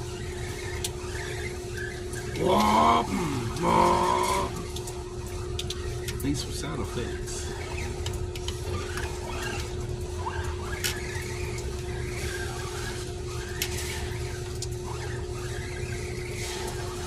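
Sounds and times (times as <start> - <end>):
steady hum: 0.0 - 17.0
rc truck motor whining: 2.4 - 4.6.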